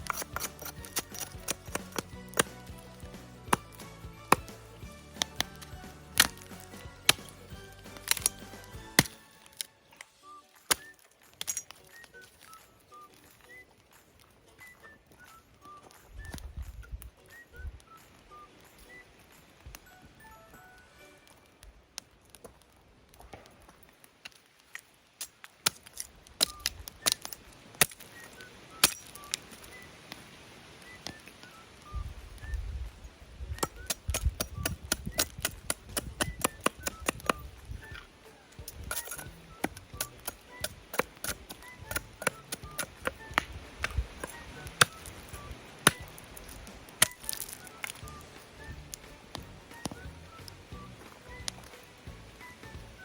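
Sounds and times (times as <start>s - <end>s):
axe chopping wood: 0.0s - 9.3s, 33.6s - 38.1s, 38.7s - 48.1s
sharp pops from fire: 0.0s - 19.9s, 21.6s - 31.6s, 32.2s - 53.0s
faint background music: 0.0s - 22.9s, 25.5s - 53.0s
campfire crackling: 0.0s - 53.0s
bird whistling: 10.2s - 11.0s, 11.8s - 13.8s, 26.5s - 30.0s, 30.8s - 32.9s, 36.2s - 49.1s.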